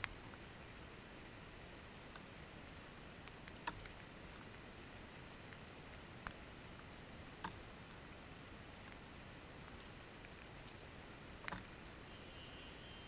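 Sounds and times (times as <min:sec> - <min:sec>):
light rain on a window: 0:00.0 - 0:13.0
raindrops striking sharply: 0:00.0 - 0:13.0.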